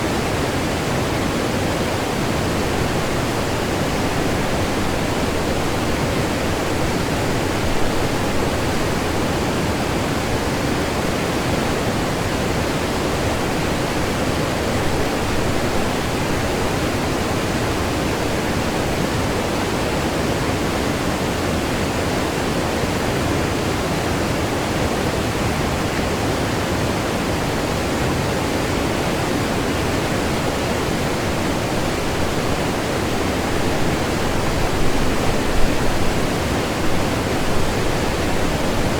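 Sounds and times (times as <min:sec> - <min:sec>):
waterfall rushing: 0:23.5 - 0:38.9.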